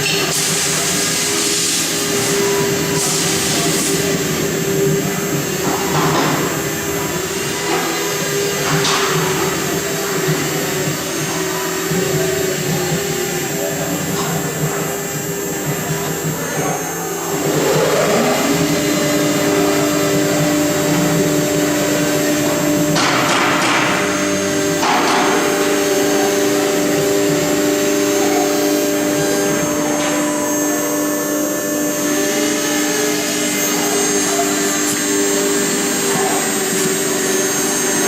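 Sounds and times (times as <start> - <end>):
router spindle motor whining: 1.3 - 38.0.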